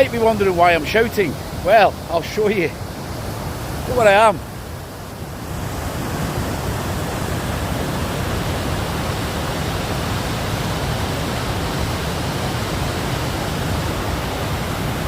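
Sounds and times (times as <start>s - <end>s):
white-water rushing: 0.0s - 15.0s.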